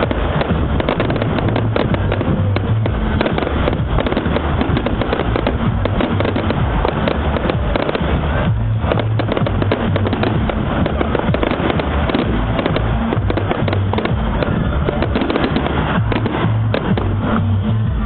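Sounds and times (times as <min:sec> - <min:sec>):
fireworks cracks and bangs: 0:00.0 - 0:18.0
music: 0:00.0 - 0:18.0.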